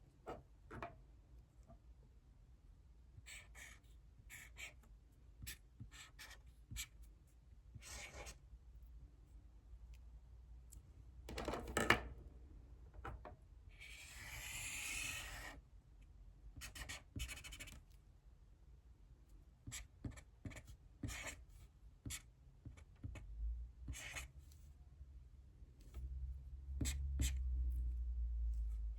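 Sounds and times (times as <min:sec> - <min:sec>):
pen writing on paper: 0:03.3 - 0:04.8, 0:05.4 - 0:07.0, 0:07.8 - 0:08.4, 0:13.8 - 0:15.6, 0:16.6 - 0:17.8, 0:19.7 - 0:21.4, 0:23.9 - 0:24.3, 0:26.8 - 0:27.4.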